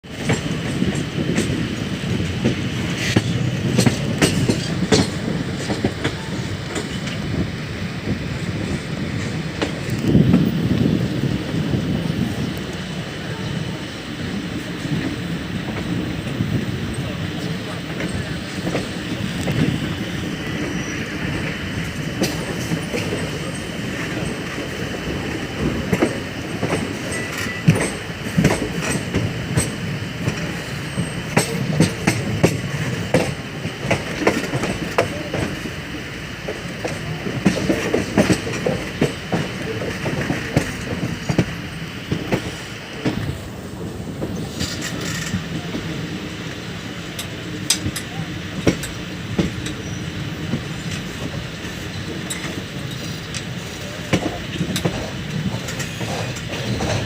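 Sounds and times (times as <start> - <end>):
train running rumble: 0.0 - 57.0
wheels clicking on rails: 0.1 - 57.0.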